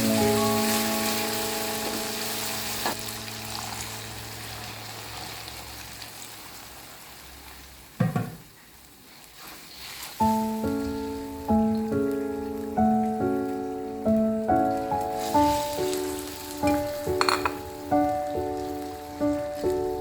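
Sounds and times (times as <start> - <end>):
background music with held notes: 0.0 - 6.0, 10.2 - 20.0
food sizzling in a pan: 0.0 - 20.0.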